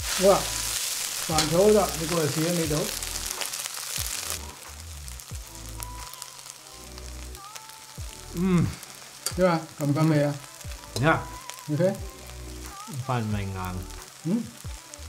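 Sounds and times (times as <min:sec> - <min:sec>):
rice sizzling in a wok: 0:00.0 - 0:15.0
people talking: 0:00.2 - 0:00.5, 0:01.3 - 0:02.9, 0:12.9 - 0:14.5.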